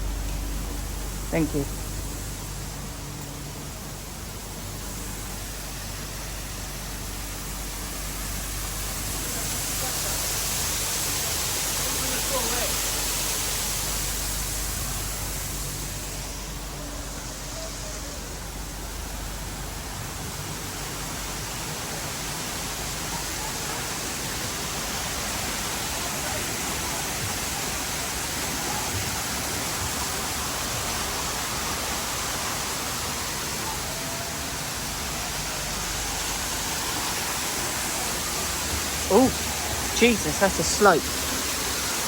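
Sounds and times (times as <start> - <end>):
waterfall rushing: 20.1 - 42.0.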